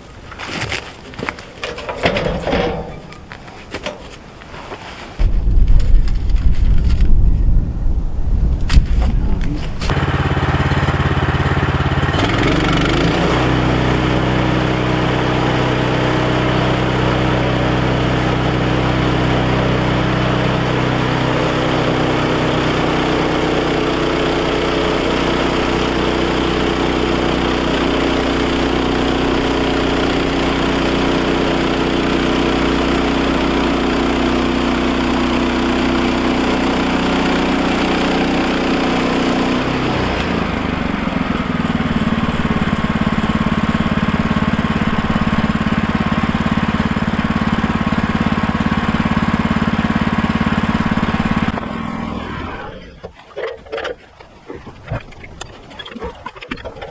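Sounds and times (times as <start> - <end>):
sawmill gas engine running: 1.7 - 5.4, 6.3 - 55.1.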